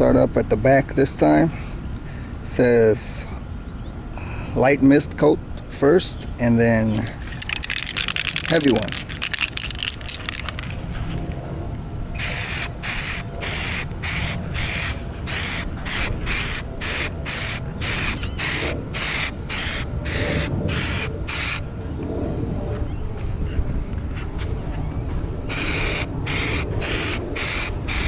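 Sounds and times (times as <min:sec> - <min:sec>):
aerosol can spraying: 0:25.5 - 0:28.0.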